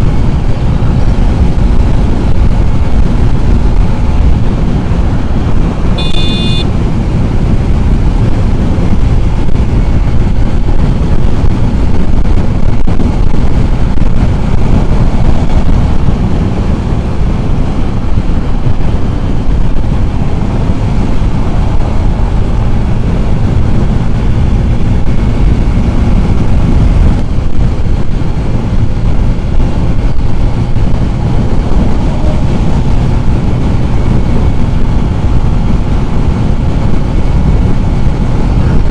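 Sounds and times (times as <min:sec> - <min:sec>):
wind rushing on microphone: 0:00.0 - 0:38.9
high-pitched tone: 0:06.0 - 0:06.7.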